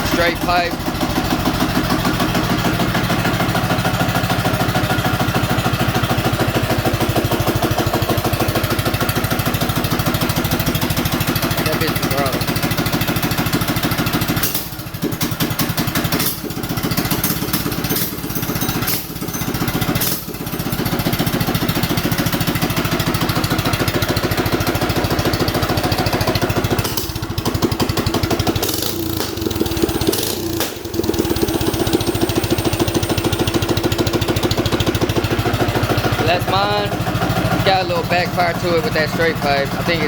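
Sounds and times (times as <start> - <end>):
minibike engine running: 0.0 - 40.0
exhaust backfire cracks: 26.7 - 34.0.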